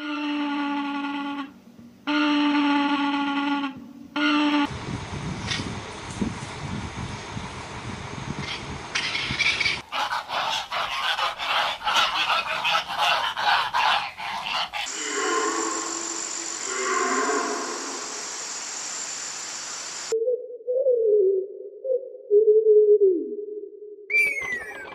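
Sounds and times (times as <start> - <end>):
farm animal calls: 9.1 - 15.6.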